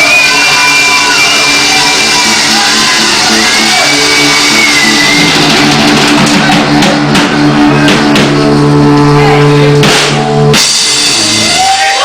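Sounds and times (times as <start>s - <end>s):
rock band playing live: 0.0s - 12.0s
sharp drum hits: 5.4s - 8.7s, 9.7s - 11.6s.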